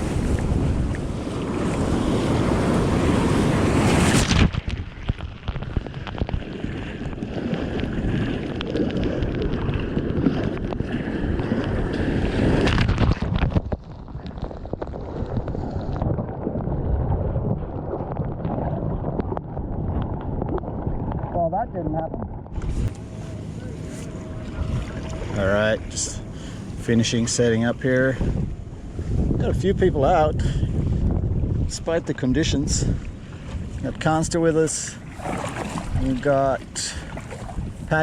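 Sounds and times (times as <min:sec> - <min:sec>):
breaking surf: 0:00.0 - 0:17.3, 0:34.0 - 0:38.0
water splashing around kayak: 0:00.0 - 0:38.0
wind buffeting microphone: 0:00.0 - 0:38.0.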